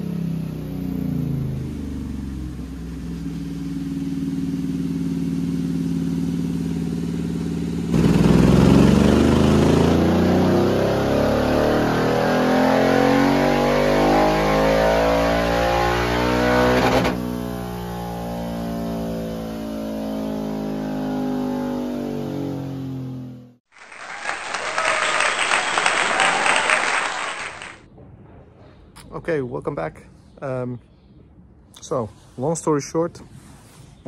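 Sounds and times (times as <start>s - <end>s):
motorcycle engine revving: 0.0s - 23.6s.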